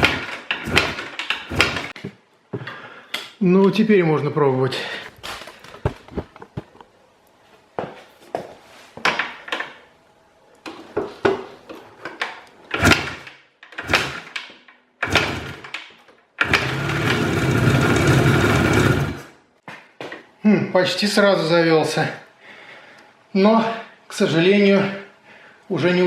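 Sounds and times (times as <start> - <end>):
motorcycle kick-start kicks: 0.0 - 2.0, 12.7 - 19.3
two-stroke engine running: 13.8 - 14.3, 15.0 - 15.7, 16.4 - 19.3.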